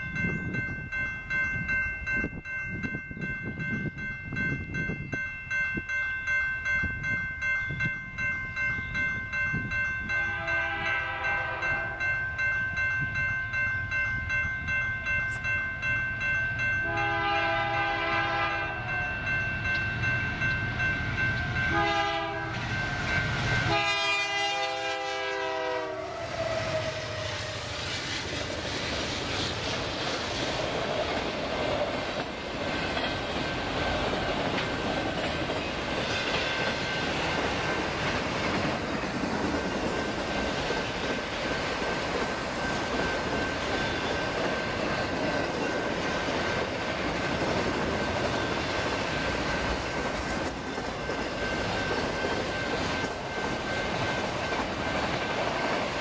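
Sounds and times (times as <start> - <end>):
diesel locomotives passing: 0.0 - 56.0
locomotive horn blasts: 10.2 - 12.0, 16.8 - 18.9, 21.7 - 22.6, 23.6 - 27.7
wheel-on-rail noise: 26.0 - 56.0.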